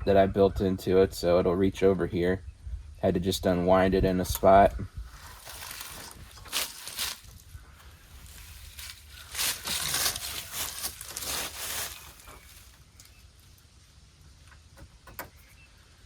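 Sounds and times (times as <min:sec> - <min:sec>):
wiring rustling and scuffing: 0:05.1 - 0:13.1.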